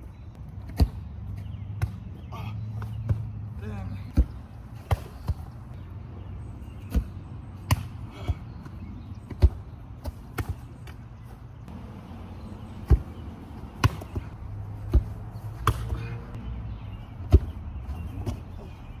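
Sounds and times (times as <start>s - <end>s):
football thudding: 1.7s - 2.1s, 4.1s - 5.6s, 6.8s - 8.7s, 9.3s - 11.0s, 12.7s - 16.1s, 17.2s - 18.7s.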